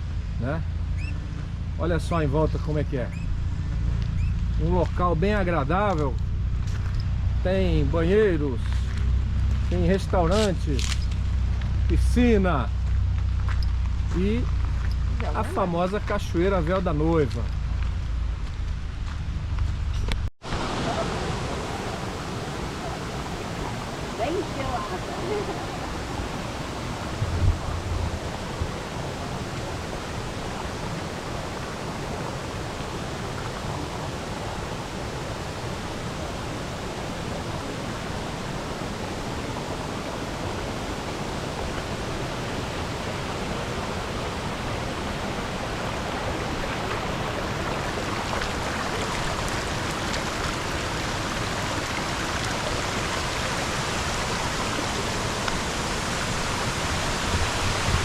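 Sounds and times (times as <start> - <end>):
waterfall pouring: 45.7 - 58.0.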